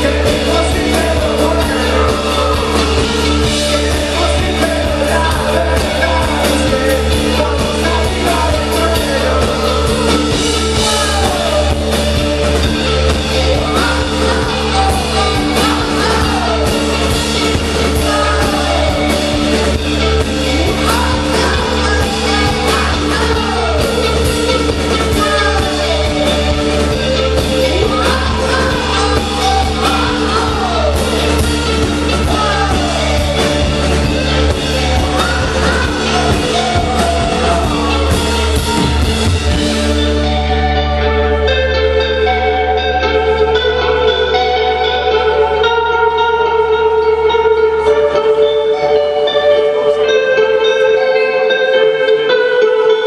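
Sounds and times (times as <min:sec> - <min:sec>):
person singing or shouting: 0:00.0 - 0:39.7
drums: 0:00.0 - 0:53.0.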